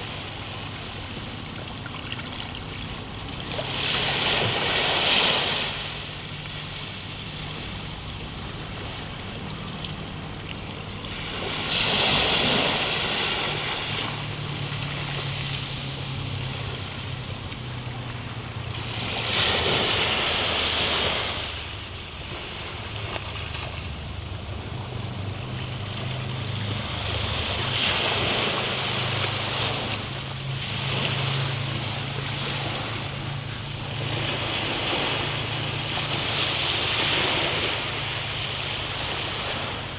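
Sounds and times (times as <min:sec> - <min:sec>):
ocean waves breaking: 0:00.0 - 0:39.9
low surf rumble: 0:12.3 - 0:39.9.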